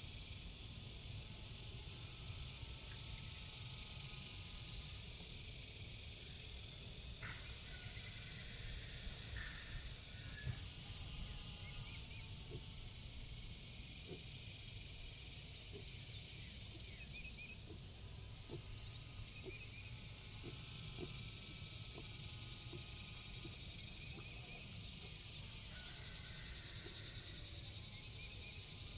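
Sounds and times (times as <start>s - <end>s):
insects trilling: 0.0s - 28.9s.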